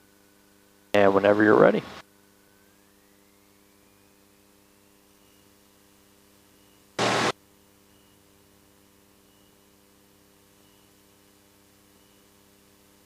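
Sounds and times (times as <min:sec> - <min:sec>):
radio hiss and hum: 0:01.0 - 0:02.0, 0:07.0 - 0:07.4
static burst: 0:01.0 - 0:02.0, 0:07.0 - 0:07.4
faint rising whine: 0:01.0 - 0:13.0.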